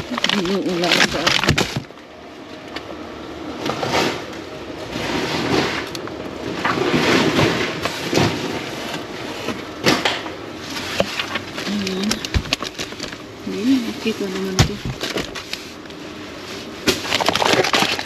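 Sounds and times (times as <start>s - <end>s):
rustling of bags and packaging: 0.0s - 2.0s, 10.5s - 18.0s.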